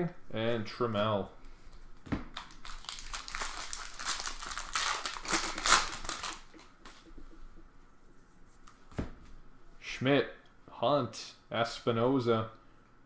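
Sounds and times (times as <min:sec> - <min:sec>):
foil wrapper tearing and crinkling: 0:02.4 - 0:06.7.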